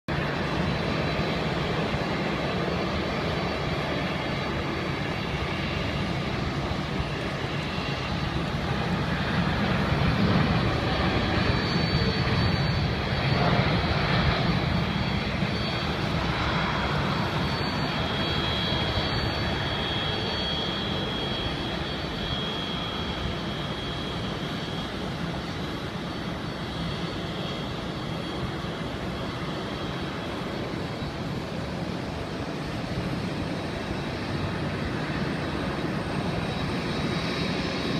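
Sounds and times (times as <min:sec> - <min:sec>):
jet airliner taking off: 0:00.1 - 0:37.9
faint high whine: 0:00.2 - 0:37.9.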